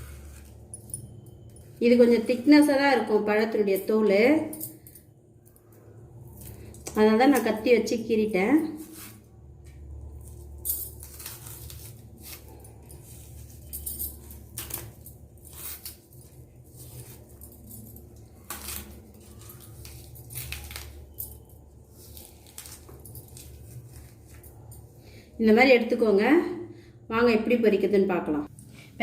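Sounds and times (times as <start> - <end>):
plantain skin tearing and scraping: 22.0 - 24.3.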